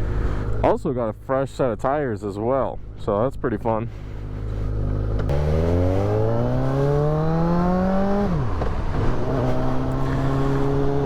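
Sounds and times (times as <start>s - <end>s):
motorcycle engine revving: 4.2s - 11.0s.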